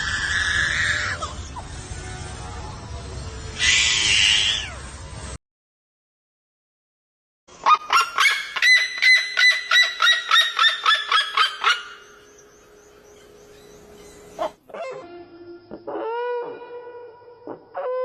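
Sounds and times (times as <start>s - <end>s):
bird calls: 7.6s - 15.0s.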